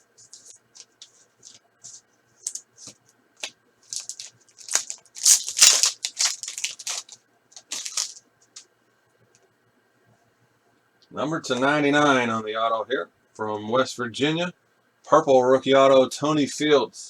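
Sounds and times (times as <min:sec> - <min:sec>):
foil wrapper crinkling and tearing: 0:02.4 - 0:08.2.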